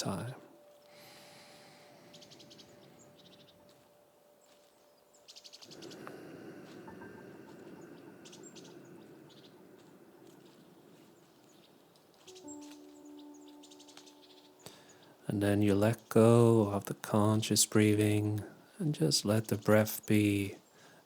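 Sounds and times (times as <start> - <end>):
soft hushing sound: 0.0 - 15.2
soft forest ambience: 0.0 - 21.0
songbirds chirping trills: 0.0 - 21.0.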